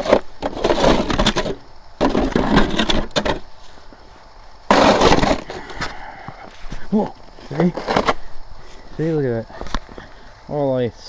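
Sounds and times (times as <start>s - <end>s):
snow shovel scraping over ice: 0.0s - 3.4s, 4.7s - 5.8s, 7.5s - 8.2s.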